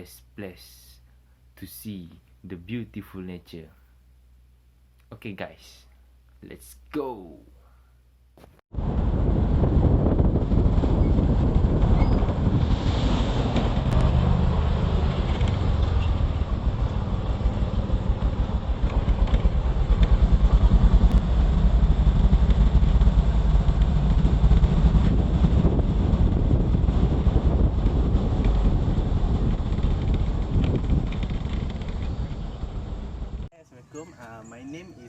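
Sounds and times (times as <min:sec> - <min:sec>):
wind on microphone: 0:08.7 - 0:33.5
vehicle engine rumbling: 0:08.8 - 0:34.6.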